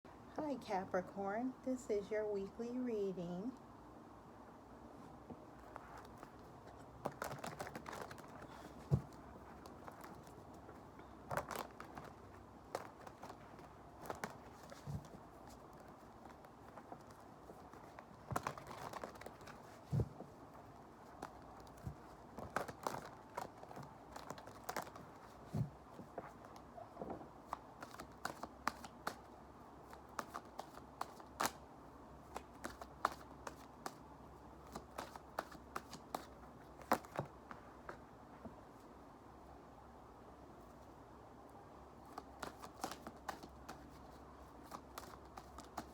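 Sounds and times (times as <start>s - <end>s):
cards shuffling and rustling: 5.5s - 26.7s, 27.4s - 31.6s, 32.2s - 38.0s, 42.0s - 45.9s.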